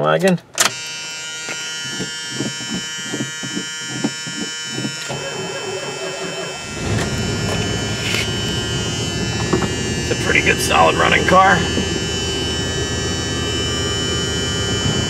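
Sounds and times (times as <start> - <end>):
car engine starting and rumbling: 0.1 - 15.0
car warning buzzer: 0.6 - 15.0.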